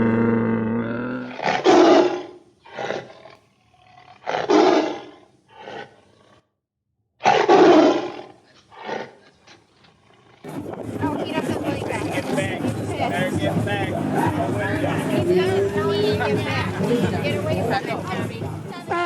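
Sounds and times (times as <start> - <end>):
big cat roaring: 0.0 - 6.4, 7.2 - 11.6.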